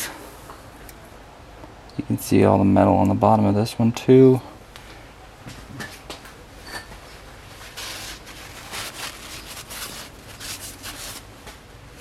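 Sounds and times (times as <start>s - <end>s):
oil filter rustling and scraping: 6.6s - 11.4s.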